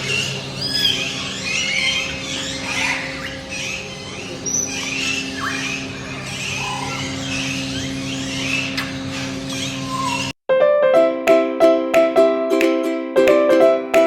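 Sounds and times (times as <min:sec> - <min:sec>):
harsh bird squawks: 0:00.0 - 0:10.3
birds chirping: 0:00.0 - 0:10.4.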